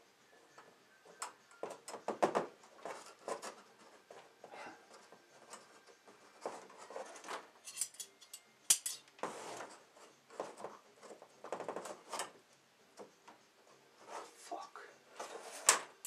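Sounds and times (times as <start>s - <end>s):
scraping and rustling: 2.5s - 8.1s, 9.0s - 12.4s, 13.0s - 16.0s.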